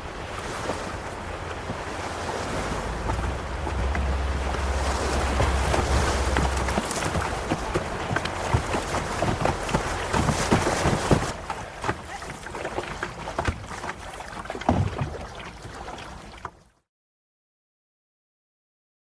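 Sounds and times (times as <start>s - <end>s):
wind on microphone: 0.0s - 11.3s
knocks and splashes: 0.0s - 16.8s
river water noise: 0.0s - 16.8s.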